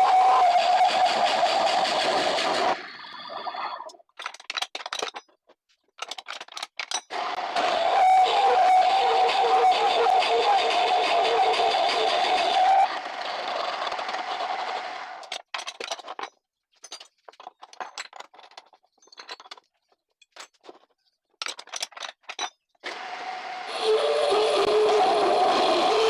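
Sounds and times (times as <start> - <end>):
wood lathe running: 0.0 - 2.9, 7.1 - 15.2, 22.9 - 26.0.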